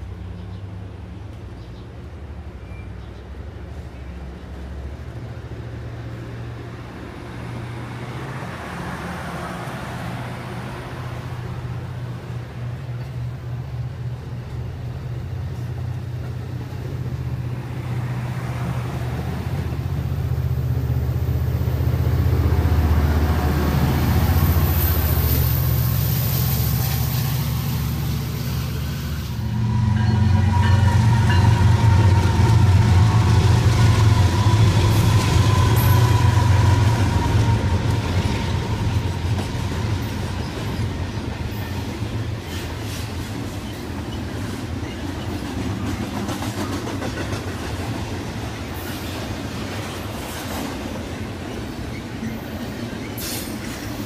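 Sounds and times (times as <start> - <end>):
diesel locomotives passing: 0.0 - 54.0
passenger train passing: 0.0 - 54.0.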